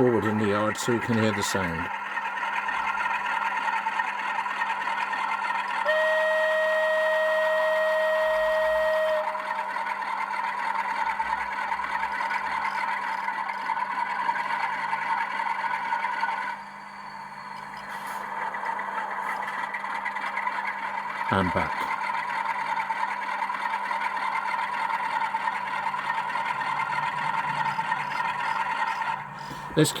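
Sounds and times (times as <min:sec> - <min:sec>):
diesel engine sound through small speaker: 0:00.0 - 0:30.0
locomotive horn blast: 0:05.8 - 0:09.6.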